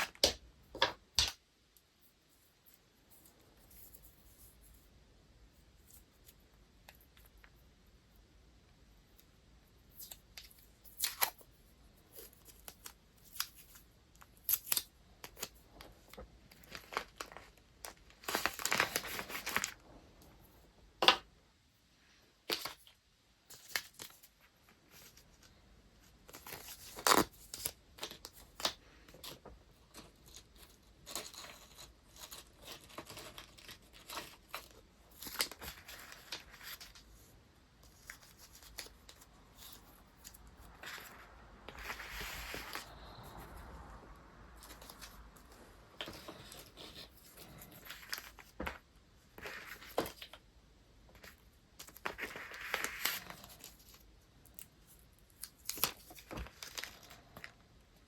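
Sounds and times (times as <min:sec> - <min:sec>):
paper rustling and crinkling: 0:12.1 - 0:20.0, 0:23.5 - 0:43.6, 0:44.6 - 0:50.4, 0:51.1 - 0:57.6.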